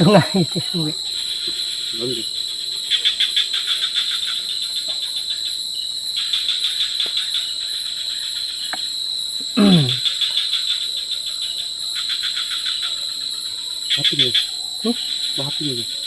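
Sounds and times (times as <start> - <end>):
insects chirping: 0.0 - 16.0
short falling vocal sound: 9.5 - 10.0.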